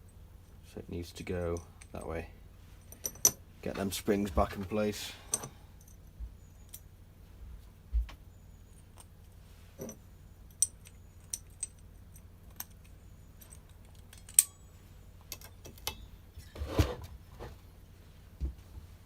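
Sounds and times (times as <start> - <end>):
small metal clicks and clinks: 5.3 - 6.0, 9.8 - 16.1
scraping rustle: 16.4 - 17.7.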